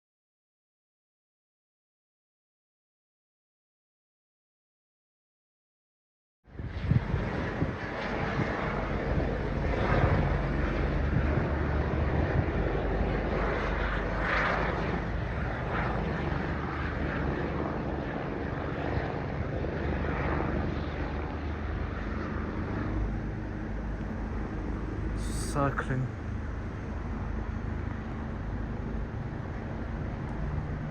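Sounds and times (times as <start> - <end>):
helicopter rotor and engine drone: 6.5 - 30.9.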